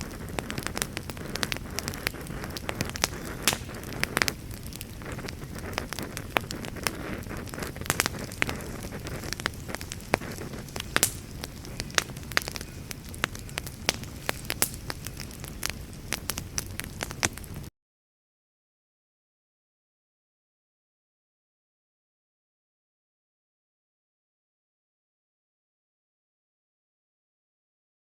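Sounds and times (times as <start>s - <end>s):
campfire crackling and popping: 0.0s - 17.7s.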